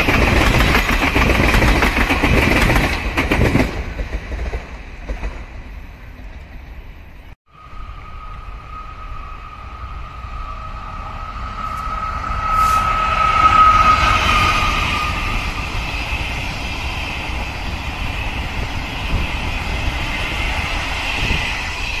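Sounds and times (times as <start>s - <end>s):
train coaches rumbling past: 0.0s - 22.0s
high steady whine: 7.5s - 22.0s.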